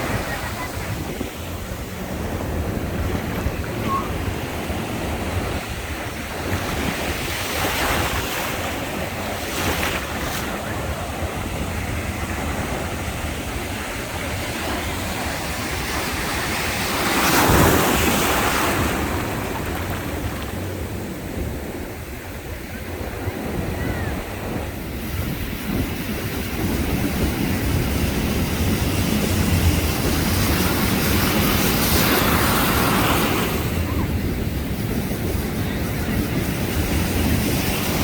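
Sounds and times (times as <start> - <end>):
sea waves breaking on shore: 0.0 - 22.1, 23.0 - 38.0.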